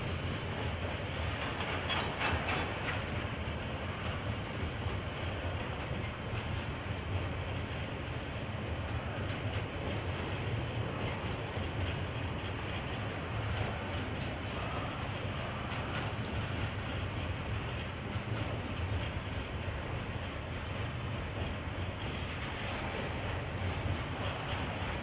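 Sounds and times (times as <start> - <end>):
train rolling past: 0.0 - 25.0
wheels clicking over rail joints: 0.1 - 8.0.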